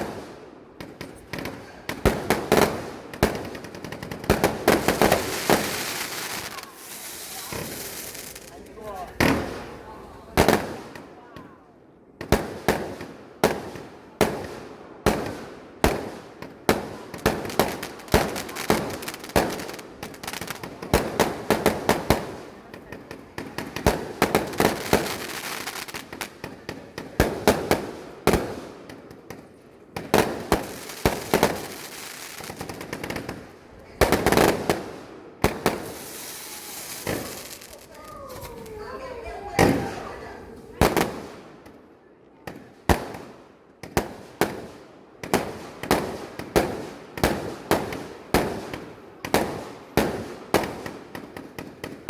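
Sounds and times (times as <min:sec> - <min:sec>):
fireworks banging: 0:00.8 - 0:11.1, 0:12.2 - 0:41.8.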